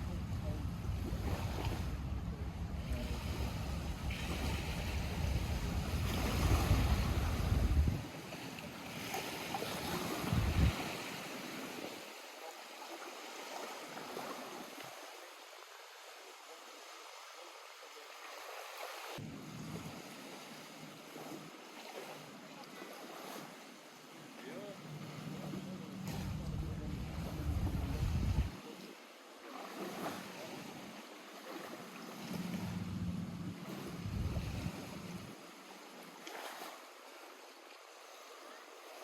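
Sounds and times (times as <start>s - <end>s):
small waves lapping: 0.0s - 39.0s
wind buffeting microphone: 0.1s - 8.1s, 10.0s - 11.0s, 26.1s - 28.6s, 32.4s - 35.3s.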